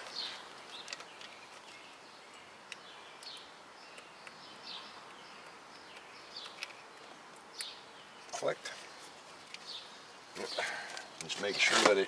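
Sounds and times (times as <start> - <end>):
sharp small clicks: 2.6 - 7.8.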